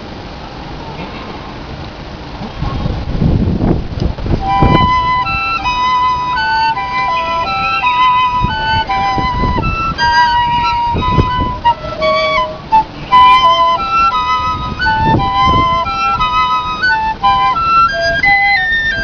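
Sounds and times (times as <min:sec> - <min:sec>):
low rumbles: 0:00.0 - 0:19.0
piccolo duet: 0:04.4 - 0:19.0.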